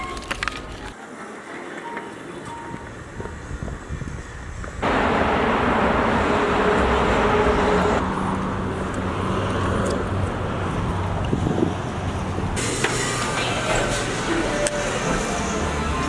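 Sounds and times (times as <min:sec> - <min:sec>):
car road noise: 0:02.9 - 0:16.0
low engine hum: 0:04.2 - 0:13.4.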